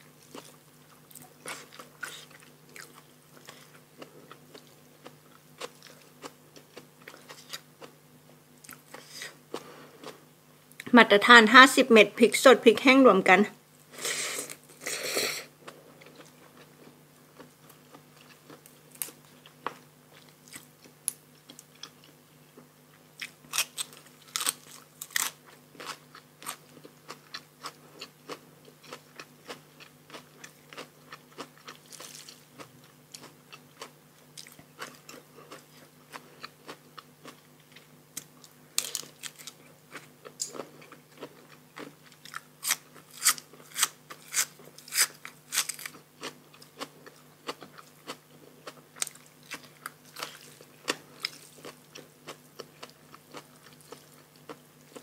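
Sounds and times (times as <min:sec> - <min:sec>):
crunchy chewing: 0:00.1 - 0:08.0, 0:15.6 - 0:55.0.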